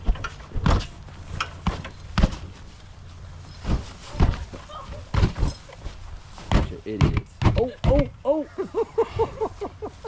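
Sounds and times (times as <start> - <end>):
knocks and thumps: 0.0 - 2.6, 3.6 - 5.8, 6.4 - 8.2.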